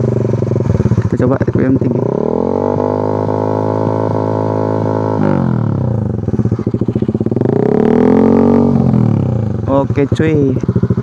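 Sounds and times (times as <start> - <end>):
choppy engine idle: 0.0 - 2.1, 5.5 - 7.7, 8.7 - 11.0
motorcycle engine revving: 0.0 - 11.0.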